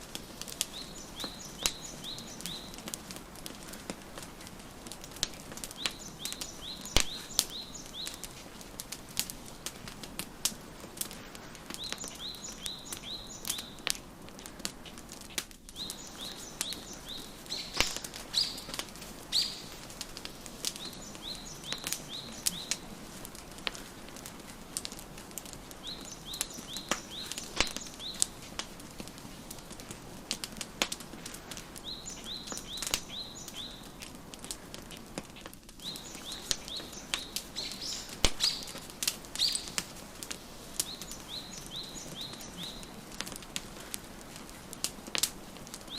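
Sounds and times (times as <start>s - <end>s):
wood fire crackling: 0.0s - 45.9s
songbird chirping: 0.2s - 9.3s, 11.3s - 14.0s, 15.7s - 28.7s, 31.7s - 34.1s, 34.9s - 43.5s.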